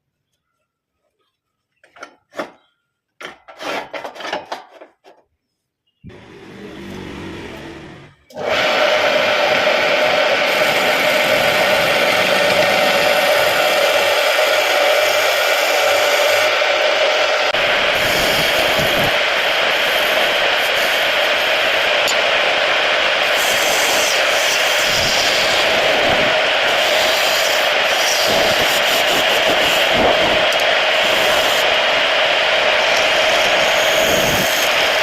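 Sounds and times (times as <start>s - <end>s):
lathe tool scraping wood: 6.1s - 16.5s, 23.2s - 31.9s, 32.6s - 35.0s.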